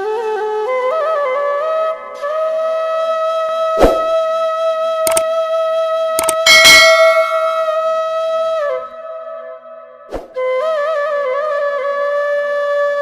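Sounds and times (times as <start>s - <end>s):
sharp clicks: 6.2s - 7.9s.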